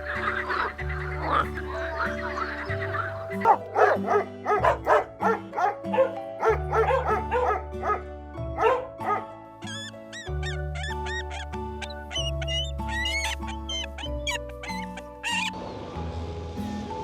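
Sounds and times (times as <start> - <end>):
background music: 0.0 - 17.0
dog barking rapidly: 3.4 - 8.0, 8.6 - 9.3, 10.2 - 15.5
high rising and falling squeaks: 9.6 - 15.6.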